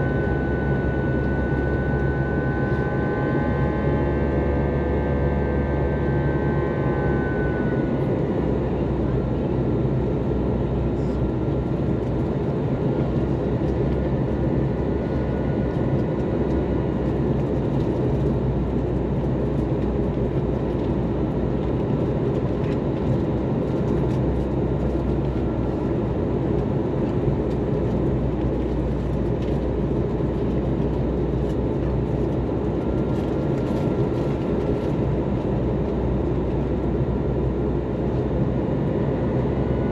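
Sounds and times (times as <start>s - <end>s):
airflow rushing in aircraft cabin: 0.0s - 39.9s
jet engines droning: 0.0s - 39.9s
thin engine whine: 0.0s - 39.9s.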